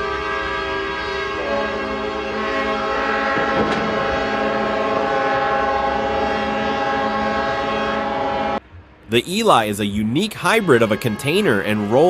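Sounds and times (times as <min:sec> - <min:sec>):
ship horns blasting: 0:00.0 - 0:12.0.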